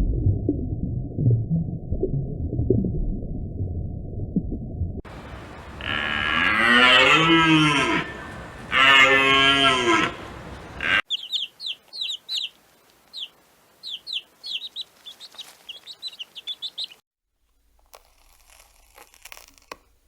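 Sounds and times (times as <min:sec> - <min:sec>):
low animal calls: 0:05.6 - 0:11.0
high bird-like chirps: 0:11.0 - 0:17.0.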